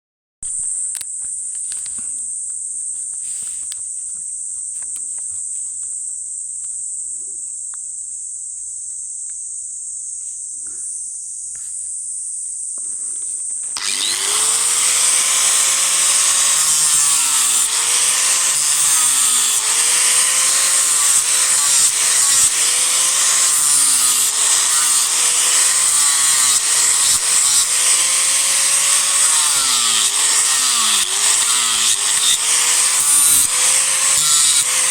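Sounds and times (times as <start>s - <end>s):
wood rasping under grinder: 12.8s - 34.9s
disc grinder whining: 13.6s - 34.9s.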